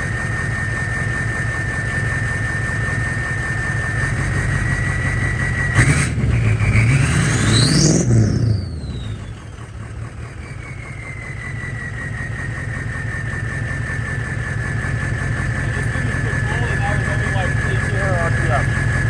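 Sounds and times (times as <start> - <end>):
turbo whistle: 0.0 - 9.7, 10.3 - 14.4
diesel truck engine revving: 0.0 - 19.0.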